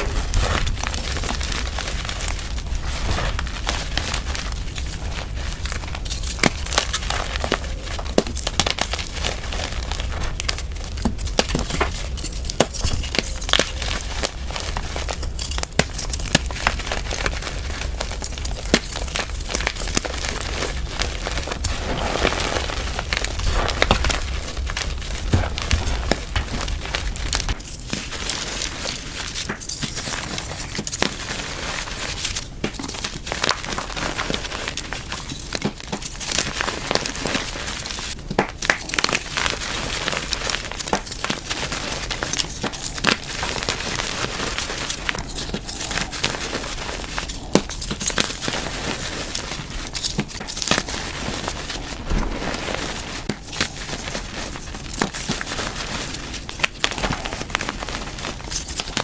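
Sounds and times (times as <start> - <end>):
chalk crunching and snapping: 0.0 - 30.8.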